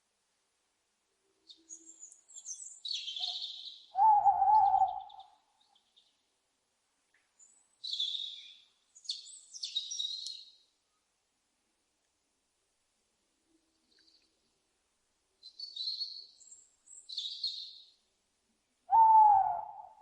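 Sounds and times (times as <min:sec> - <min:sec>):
owl wavering hoot: 0:03.2 - 0:05.4, 0:18.9 - 0:20.0
owl screeches: 0:18.9 - 0:20.0.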